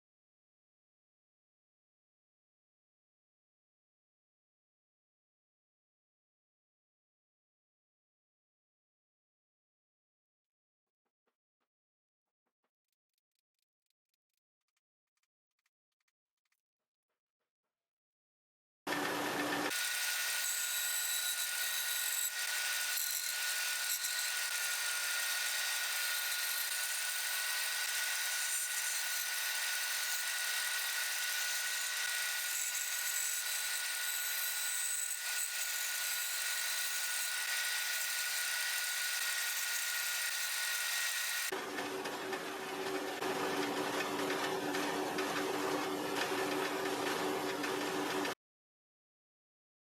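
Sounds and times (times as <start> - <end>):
power tool grinding wood: 18.9 - 48.4.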